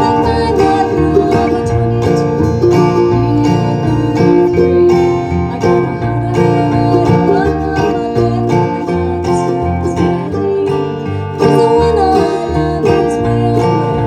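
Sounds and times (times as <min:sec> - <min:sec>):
acoustic guitar: 0:00.0 - 0:14.0
plucked banjo: 0:00.0 - 0:14.0.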